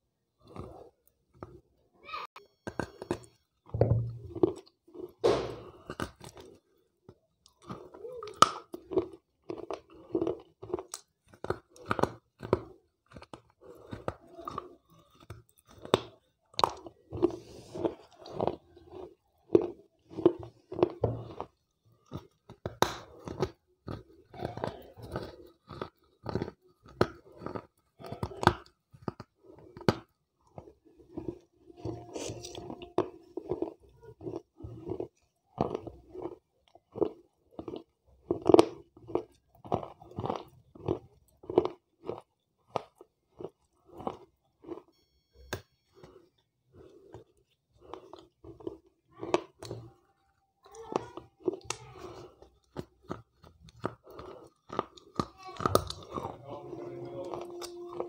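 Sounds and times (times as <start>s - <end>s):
chewing: 0.3s - 1.8s, 2.4s - 58.0s
crunching bites: 7.4s - 44.9s.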